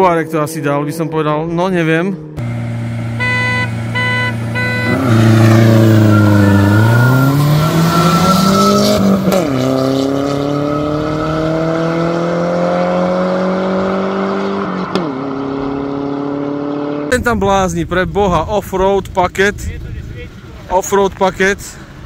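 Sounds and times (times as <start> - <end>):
race car engines accelerating: 0.0 - 22.0
short beep: 3.2 - 7.3.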